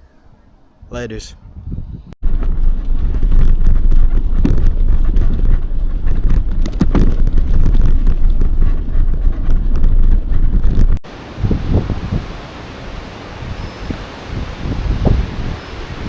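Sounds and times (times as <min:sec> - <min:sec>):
wind buffeting microphone: 0:00.8 - 0:16.0
bicycle knocks and rattles: 0:02.3 - 0:11.0.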